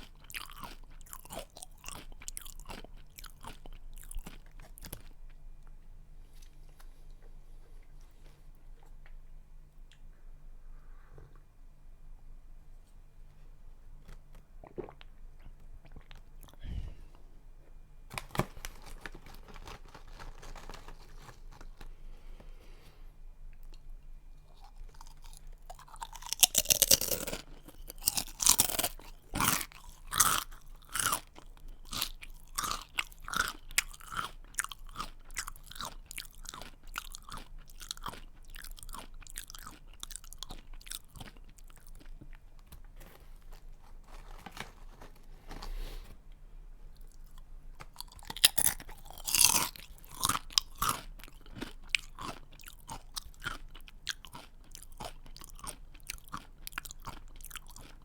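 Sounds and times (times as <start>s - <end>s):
crunchy snack bites: 0.0s - 5.2s, 24.5s - 45.1s, 47.0s - 58.0s
chewing crunches: 0.0s - 5.4s, 24.4s - 45.2s, 47.0s - 58.0s.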